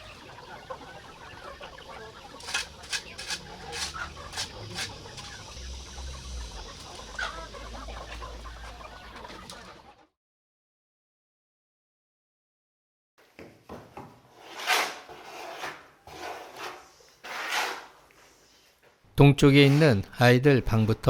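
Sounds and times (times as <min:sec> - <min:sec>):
chickens clucking: 0:00.0 - 0:10.2.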